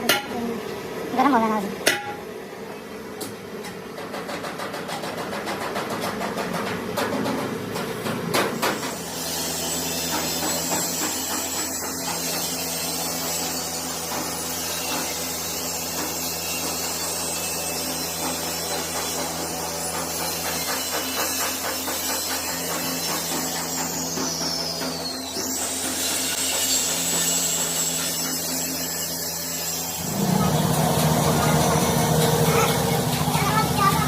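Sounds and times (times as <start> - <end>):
power tool humming: 8.9 - 34.0.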